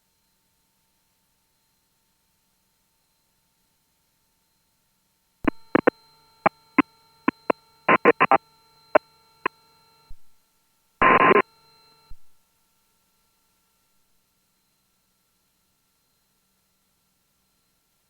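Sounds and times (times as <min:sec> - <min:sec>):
burst of static: 0:05.5 - 0:05.9, 0:07.3 - 0:08.4, 0:11.0 - 0:11.4
faint electronic tones: 0:05.5 - 0:05.9, 0:07.3 - 0:08.4, 0:11.0 - 0:11.4
radio clicks and pops: 0:05.5 - 0:05.9, 0:07.3 - 0:08.4, 0:10.1 - 0:10.3, 0:11.0 - 0:11.4.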